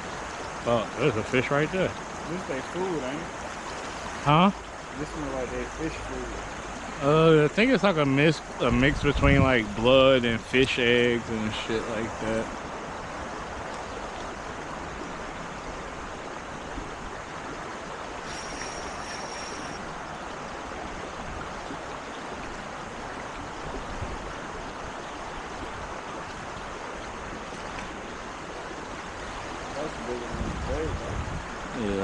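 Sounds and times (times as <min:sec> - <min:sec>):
creek water flowing: 0:00.0 - 0:08.8, 0:09.6 - 0:32.0
high-pitched steady tone: 0:18.2 - 0:19.8.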